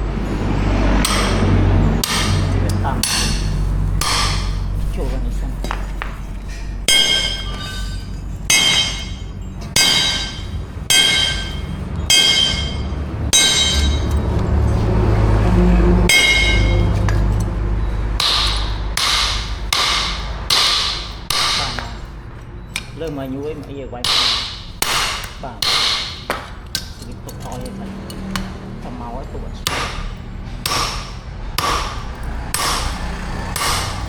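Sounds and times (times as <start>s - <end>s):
hammer striking steel on anvil: 0.9s - 4.8s, 6.6s - 14.8s, 16.0s - 28.7s, 29.6s - 34.0s.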